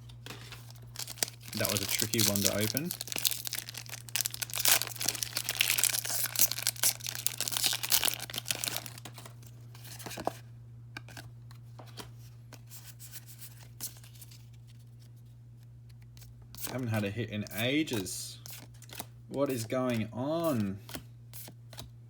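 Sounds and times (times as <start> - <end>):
foil wrapper tearing and crinkling: 0.3 - 9.4.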